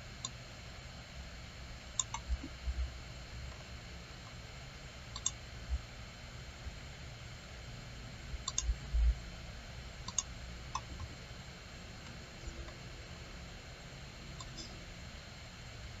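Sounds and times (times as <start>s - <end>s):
computer mouse clicking: 2.0s - 2.5s, 5.1s - 5.4s, 8.4s - 8.7s, 10.0s - 11.1s, 14.4s - 14.8s.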